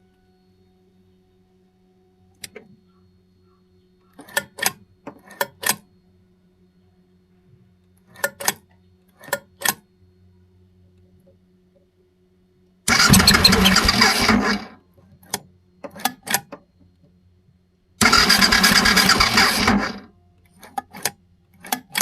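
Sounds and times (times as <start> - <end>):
faint steady hum: 0.0 - 21.9
sharp mechanical clicks: 12.9 - 16.5, 18.0 - 20.0, 20.6 - 22.0.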